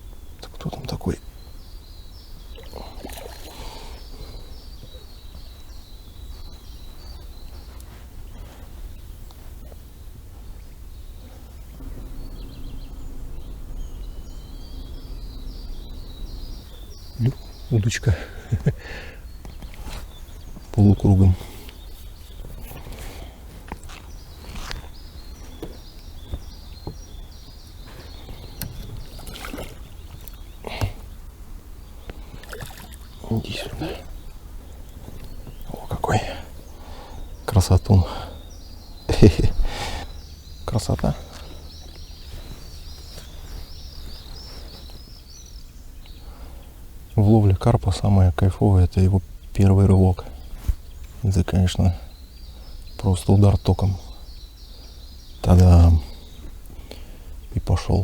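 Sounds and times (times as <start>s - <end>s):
low rumble: 8.3s - 22.2s.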